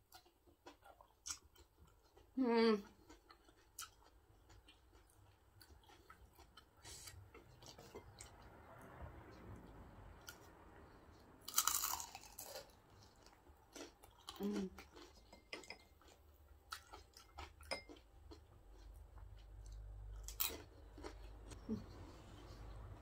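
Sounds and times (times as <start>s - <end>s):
chewing with mouth clicks: 0.1s - 23.0s
crunch of fried food: 11.4s - 15.3s, 16.0s - 21.7s.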